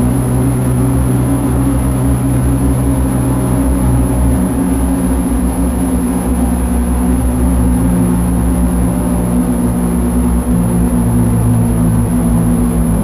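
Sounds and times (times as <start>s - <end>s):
low synthesizer drone: 0.0s - 13.0s.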